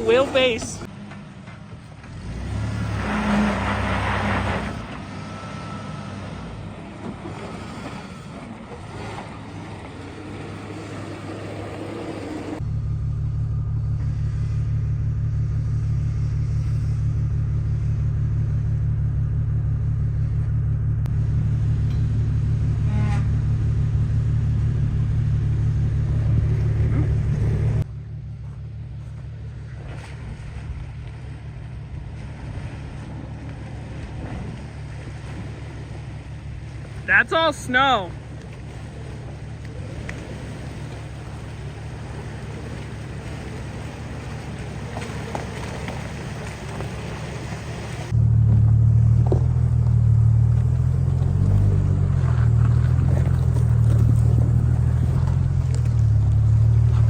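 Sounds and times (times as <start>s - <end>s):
truck engine running: 0.0s - 57.0s
loud steady low drone: 12.4s - 43.8s.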